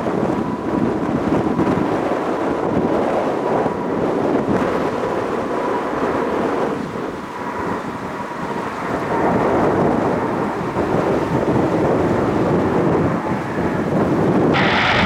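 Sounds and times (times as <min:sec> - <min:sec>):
faint jet whine: 0:14.6 - 0:15.0
jet engines roaring: 0:14.6 - 0:15.0.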